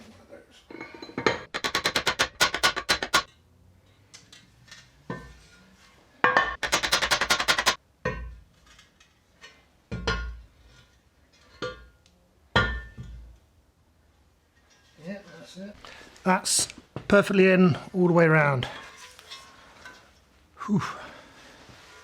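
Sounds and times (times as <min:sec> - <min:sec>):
hammer tapping metal: 0:01.4 - 0:03.3, 0:06.6 - 0:07.8
heavy hammer knocks: 0:01.5 - 0:03.3, 0:06.6 - 0:07.8.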